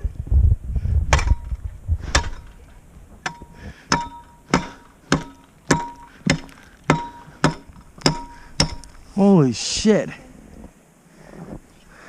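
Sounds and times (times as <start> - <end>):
metal tool striking ice: 3.2 - 9.0.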